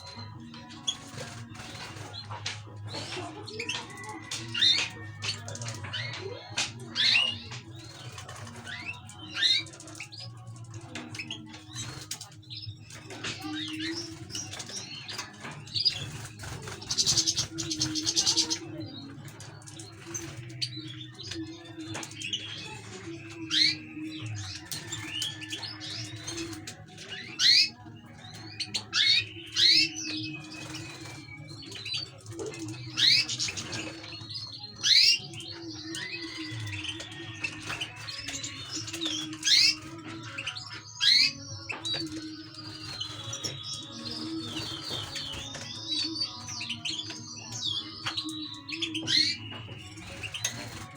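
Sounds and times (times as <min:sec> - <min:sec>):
finches chirping: 0:00.0 - 0:10.4, 0:11.0 - 0:50.9
buzzy bird trill: 0:27.1 - 0:50.9.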